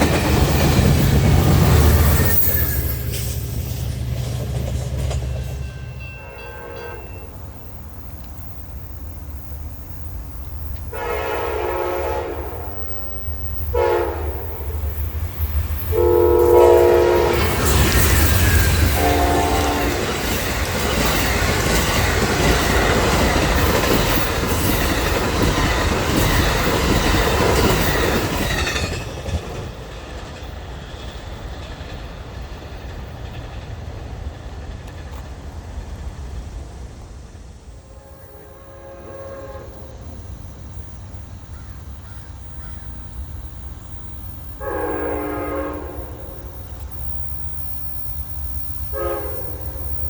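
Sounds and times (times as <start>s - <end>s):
train wheels clattering on rails: 0.0s - 36.6s
diesel locomotive rumble: 0.0s - 50.0s
train air horn: 6.1s - 7.4s, 10.9s - 13.0s, 13.7s - 14.8s, 15.9s - 20.1s, 37.8s - 40.0s, 44.6s - 46.5s, 48.9s - 50.0s.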